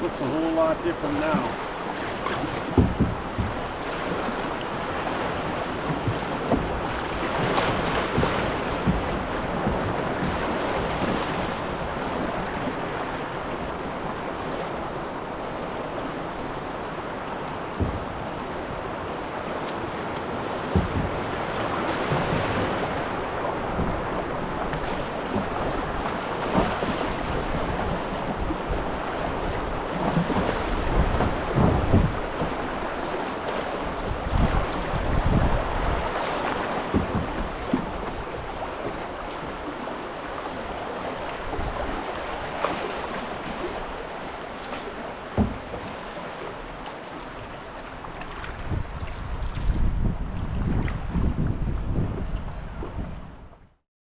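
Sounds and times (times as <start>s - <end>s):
wind buffeting microphone: 0.0s - 12.8s, 16.5s - 33.0s, 33.8s - 39.6s, 48.2s - 53.7s
river rapids rushing: 0.0s - 29.9s.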